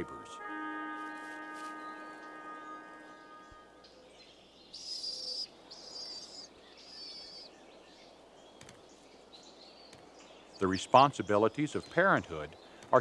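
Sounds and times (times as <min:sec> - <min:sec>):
faint outdoor ambience: 0:00.0 - 0:13.0
small bird high-pitched call: 0:03.8 - 0:07.5.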